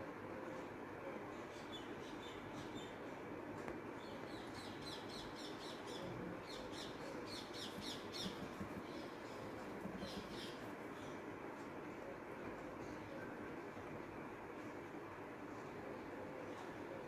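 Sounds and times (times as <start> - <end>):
low background hum: 0.0 - 17.0
small birds chirping: 3.9 - 11.4.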